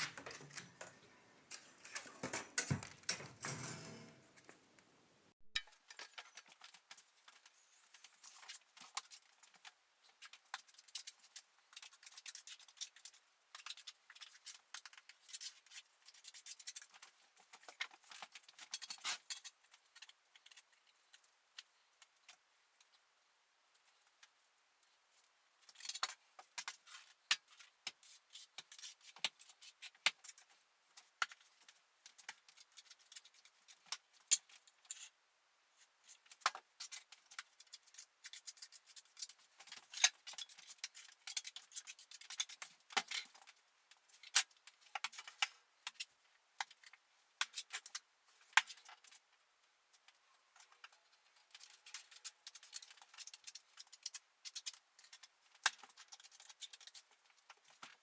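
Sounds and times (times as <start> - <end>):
metal tools clicking and tapping: 0.0 - 4.6
tools scraping metal: 0.0 - 4.6.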